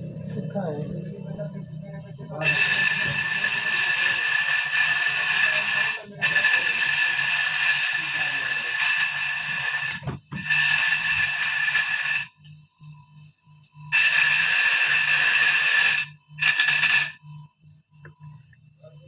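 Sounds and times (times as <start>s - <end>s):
grinding wheel sharpening saw blade: 2.4s - 12.4s, 13.9s - 17.2s.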